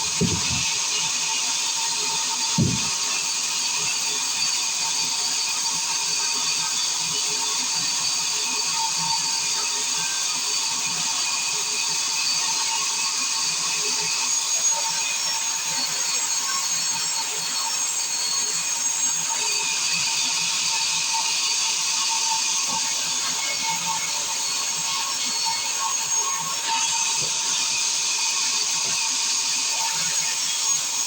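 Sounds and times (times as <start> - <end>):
circular saw whining: 0.0 - 3.6, 22.4 - 31.0.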